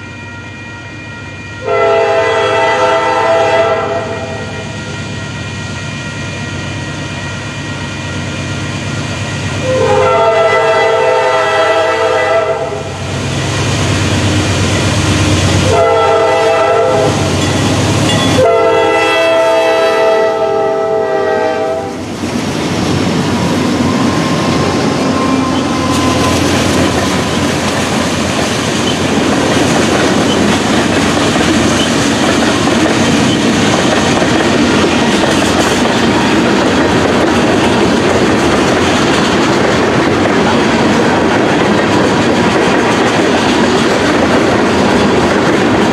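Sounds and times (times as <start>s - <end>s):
train horn blasts: 0.0s - 8.8s, 9.6s - 13.0s, 15.6s - 22.0s, 23.7s - 27.4s
freight cars rumbling and clattering: 22.0s - 45.9s.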